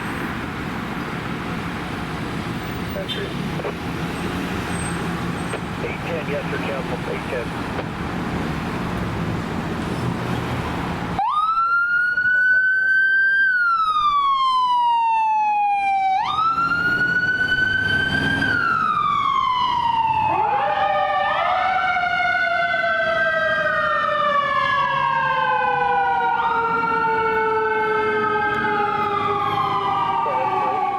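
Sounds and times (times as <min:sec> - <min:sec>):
wailing siren: 0:11.2 - 0:30.9.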